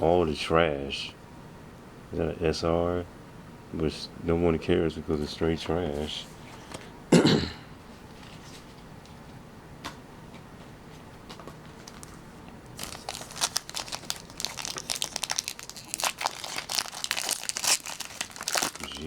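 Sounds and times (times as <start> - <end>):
foil pack crinkling and tearing: 11.8 - 12.2, 12.8 - 19.0.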